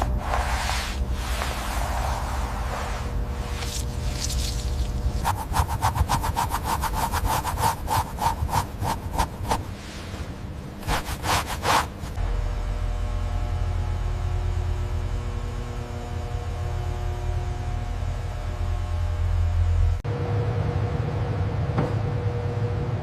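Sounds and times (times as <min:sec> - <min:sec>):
rhythmic scraping strokes: 0:00.0 - 0:09.9, 0:10.8 - 0:12.2
steady low hum: 0:00.0 - 0:23.0.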